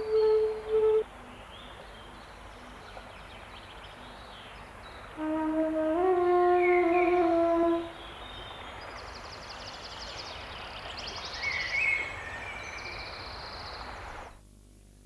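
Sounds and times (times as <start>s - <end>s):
short gliding call: 0.0s - 1.2s, 5.2s - 8.1s.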